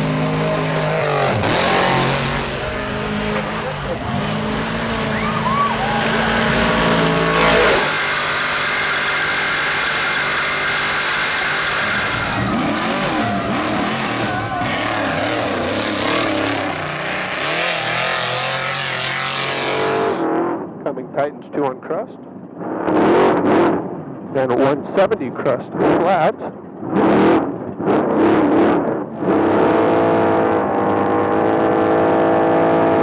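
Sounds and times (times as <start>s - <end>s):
truck engine running hard: 0.0s - 20.2s
tyre and road noise: 0.0s - 20.3s
loud jolt: 1.0s - 15.0s.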